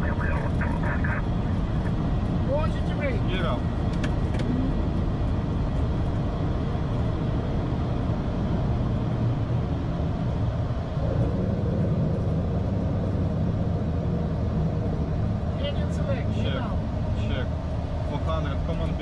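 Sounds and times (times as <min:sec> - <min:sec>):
jet engines rumbling: 0:00.0 - 0:19.0
rushing airflow: 0:07.0 - 0:15.6.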